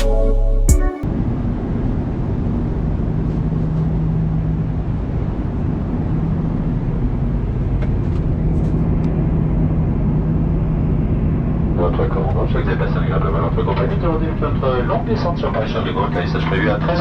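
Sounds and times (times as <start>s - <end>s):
low hum: 0.0s - 1.9s.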